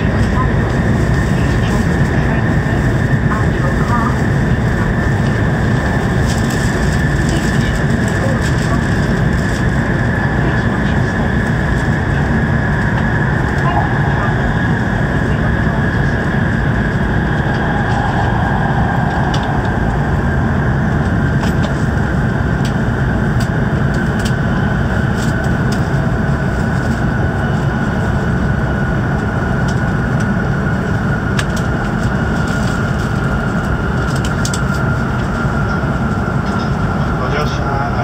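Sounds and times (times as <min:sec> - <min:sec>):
faint high whine: 0:00.0 - 0:23.2
train cabin rumble: 0:00.0 - 0:38.0.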